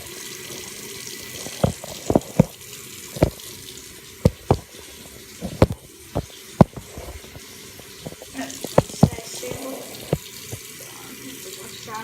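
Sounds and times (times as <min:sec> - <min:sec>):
water running from a tap: 0:00.0 - 0:12.0.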